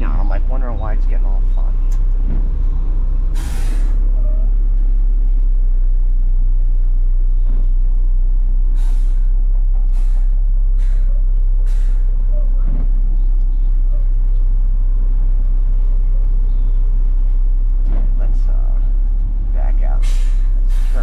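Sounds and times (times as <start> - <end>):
diesel engine running: 0.0 - 21.0
sharp air hiss: 3.4 - 4.0, 20.0 - 21.0.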